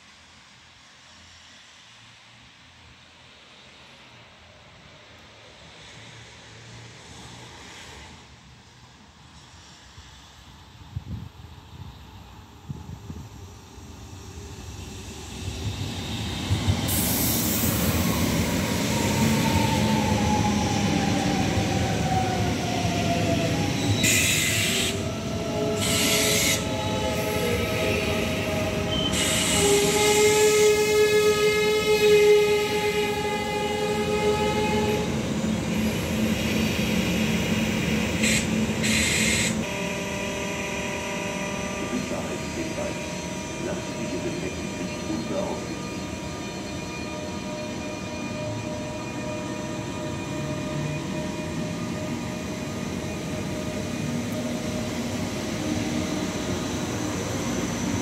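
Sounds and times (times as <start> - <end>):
standing train hum: 0.0 - 58.0
train motor whine: 15.4 - 58.0
brake squeal: 28.9 - 30.3, 41.8 - 54.6
short high hissing bursts: 38.2 - 39.6.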